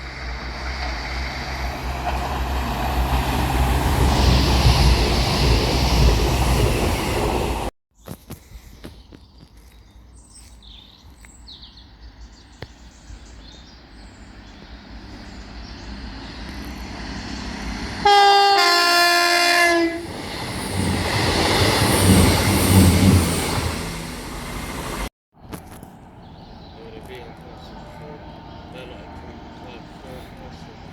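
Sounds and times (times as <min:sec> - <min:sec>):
train wheels rumbling on rails: 0:00.0 - 0:07.7, 0:14.1 - 0:18.7, 0:19.3 - 0:30.9
train two-tone horn: 0:18.0 - 0:20.1.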